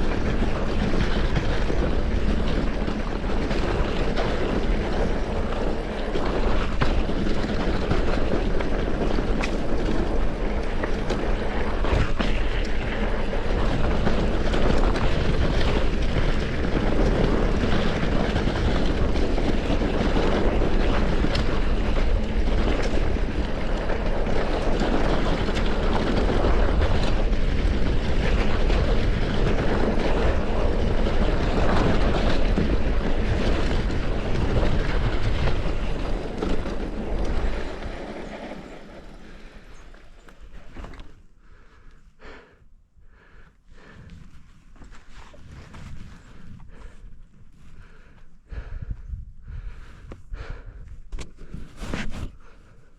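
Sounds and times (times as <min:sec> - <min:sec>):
bike knocks and rattles: 0:00.0 - 0:41.3
tyre rumble on dirt trail: 0:00.0 - 0:42.5, 0:43.2 - 0:52.9
wind noise: 0:00.0 - 0:52.9.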